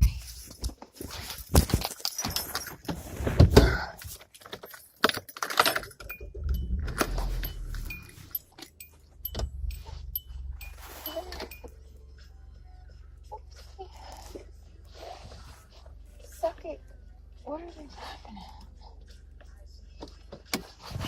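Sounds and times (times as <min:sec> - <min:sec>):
metallic jangling and clicking: 0:01.3 - 0:03.0, 0:04.3 - 0:11.8
car engine rumble: 0:05.8 - 0:17.7
faint short high beeps: 0:06.1 - 0:11.8.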